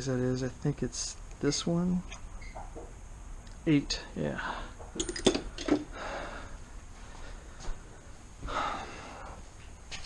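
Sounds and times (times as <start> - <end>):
tool handling: 5.0 - 5.9
breathy exhales: 5.8 - 6.6.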